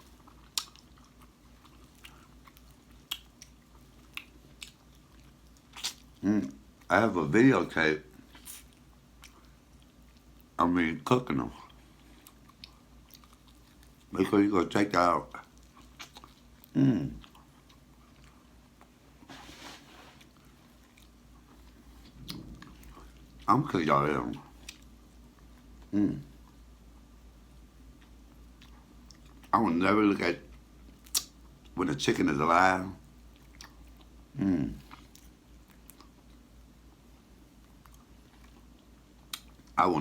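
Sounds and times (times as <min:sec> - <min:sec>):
close-up chewing: 0:00.0 - 0:06.9, 0:08.0 - 0:10.6, 0:11.5 - 0:14.2, 0:15.3 - 0:23.5, 0:24.1 - 0:27.1, 0:27.8 - 0:29.6, 0:33.0 - 0:39.8.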